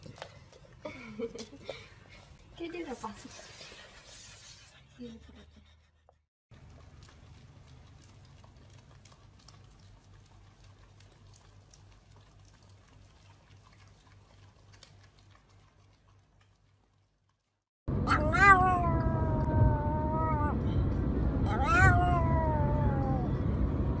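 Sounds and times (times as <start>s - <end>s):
dogs licking: 0.0s - 4.0s, 6.5s - 17.5s
low steady hum: 17.9s - 24.0s.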